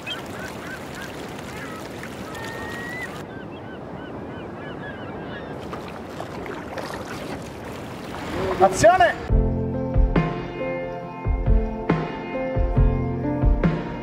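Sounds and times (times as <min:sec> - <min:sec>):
birds calling: 0:00.0 - 0:09.3.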